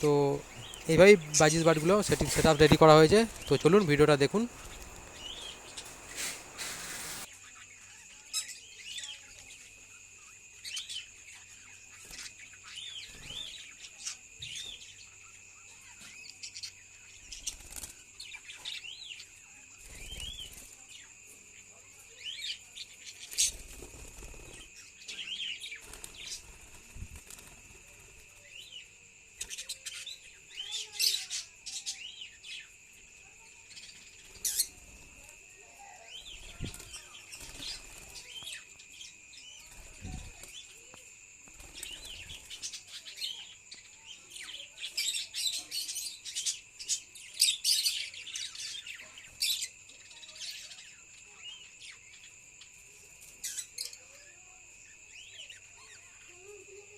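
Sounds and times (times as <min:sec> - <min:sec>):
budgerigars chirping and chattering: 0:00.0 - 0:09.2.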